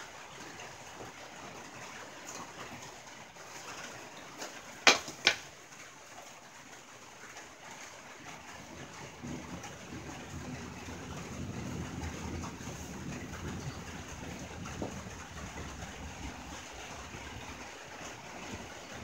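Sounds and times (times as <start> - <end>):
rain on a tin roof: 0.0 - 19.0.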